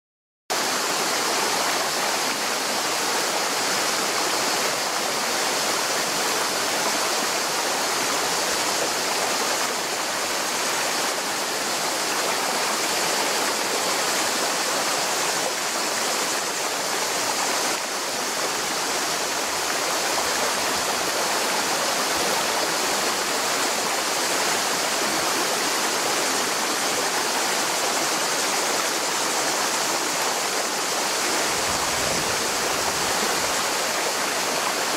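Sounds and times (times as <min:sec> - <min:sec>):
river water rushing over rocks: 0:00.5 - 0:34.9.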